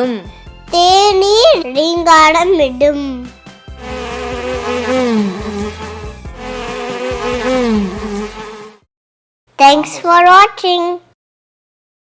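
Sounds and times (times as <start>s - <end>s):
honeybee buzzing: 3.6s - 8.9s.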